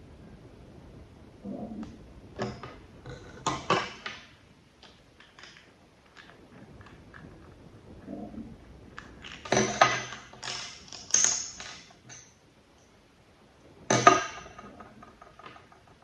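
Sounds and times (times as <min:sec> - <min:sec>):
metal parts clinking and clattering: 0:09.2 - 0:12.3.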